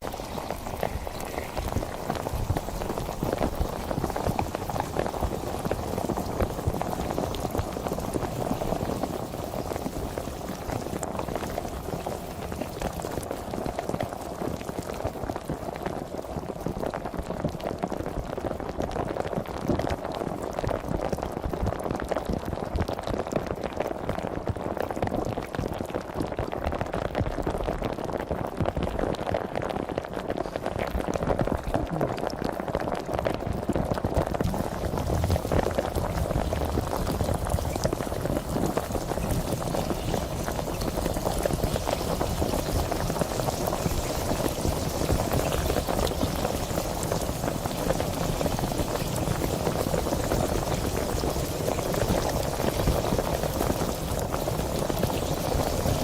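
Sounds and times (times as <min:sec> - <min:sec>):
sparkling water fizzing: 0:00.0 - 0:15.8, 0:30.4 - 0:56.0.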